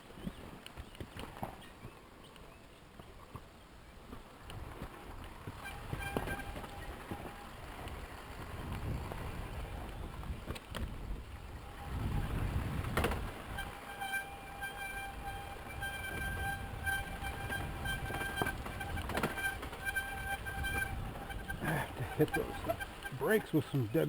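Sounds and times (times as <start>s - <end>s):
dirt bike engine rumble: 4.8s - 23.7s
dirt bike brakes squealing: 5.6s - 7.4s, 11.8s - 23.4s.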